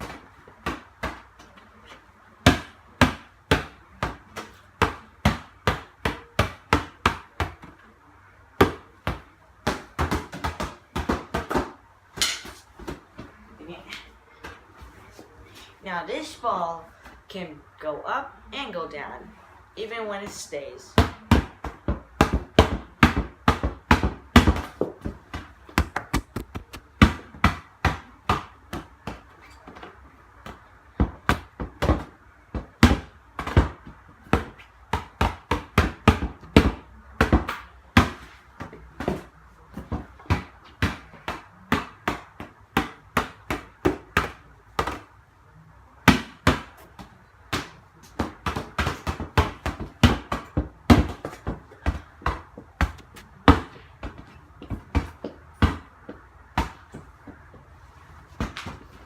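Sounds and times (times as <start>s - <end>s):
ball bouncing on hard floor: 21.0s - 45.0s, 46.1s - 57.5s.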